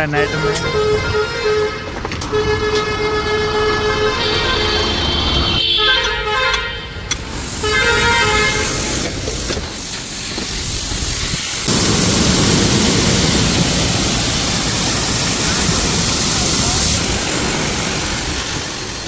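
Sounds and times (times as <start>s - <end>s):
vehicle horn honking: 0.0s - 7.0s, 7.6s - 8.8s
traffic and engine noise: 0.0s - 19.0s
loud rushing noise: 7.3s - 19.0s.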